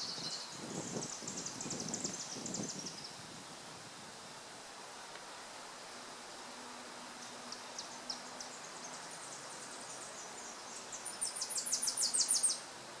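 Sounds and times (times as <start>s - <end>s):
songbird singing: 0.0s - 3.2s, 6.5s - 12.9s.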